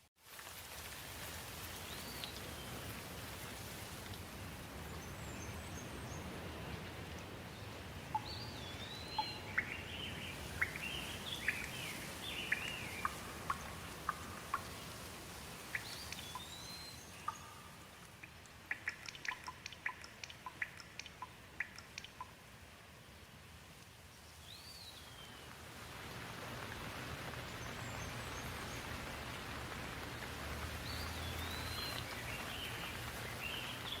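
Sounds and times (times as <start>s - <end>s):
steady rain: 0.0s - 34.0s
bird singing: 8.1s - 14.4s, 15.8s - 17.9s, 30.8s - 34.0s.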